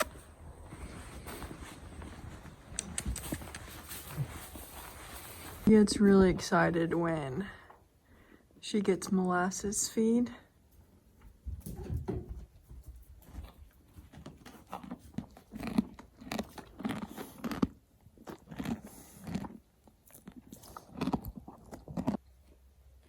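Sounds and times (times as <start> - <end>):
horse chewing and crunching feed: 0.0 - 6.6, 12.9 - 23.0.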